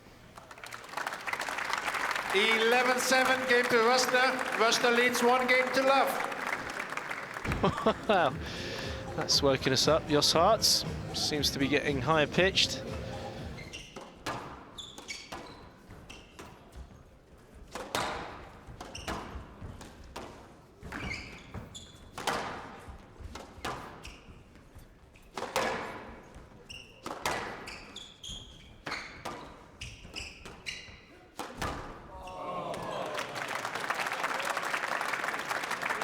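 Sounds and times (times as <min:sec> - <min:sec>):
shoes squeaking on court floor: 0:02.4 - 0:17.1, 0:18.6 - 0:32.4.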